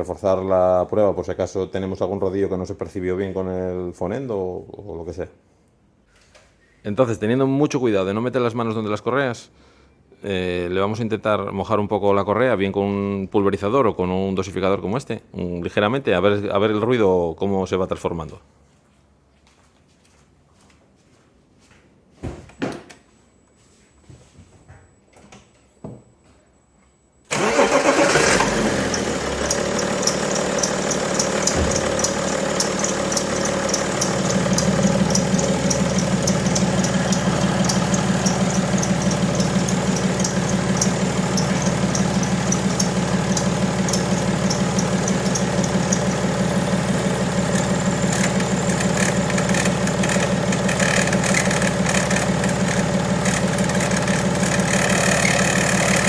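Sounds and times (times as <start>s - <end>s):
diesel engine starting and idling: 27.3s - 56.0s
belt tensioner rattling: 27.4s - 56.0s
belt chirping squeaks: 28.9s - 46.3s.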